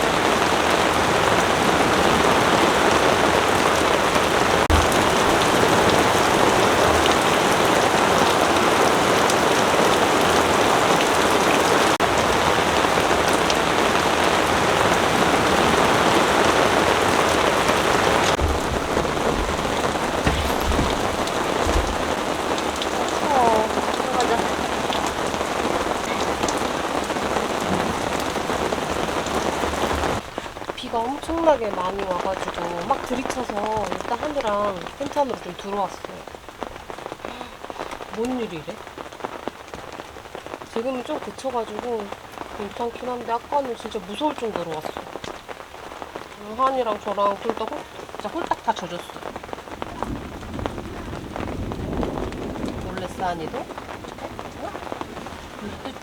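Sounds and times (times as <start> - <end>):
heavy rain pouring: 0.0 - 56.0
dull low thumps: 4.6 - 7.2, 17.2 - 30.4.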